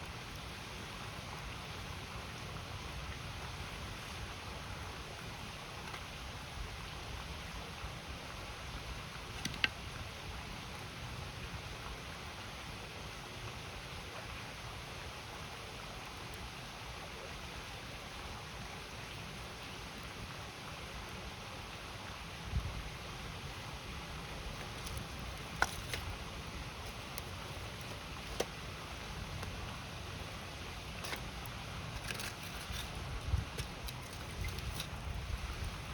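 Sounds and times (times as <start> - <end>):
river flowing: 0.0 - 35.9
wood fire crackling: 24.2 - 35.9.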